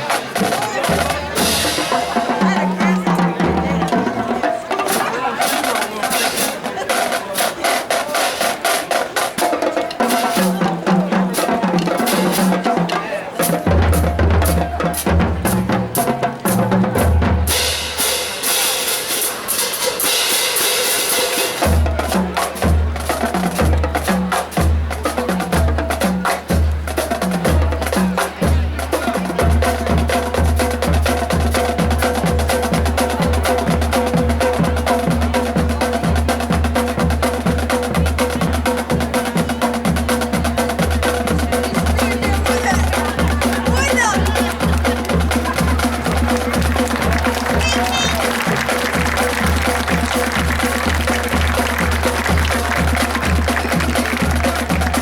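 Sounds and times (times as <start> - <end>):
bass drums pounding: 39.9 - 55.0
brass chords: 40.6 - 55.0.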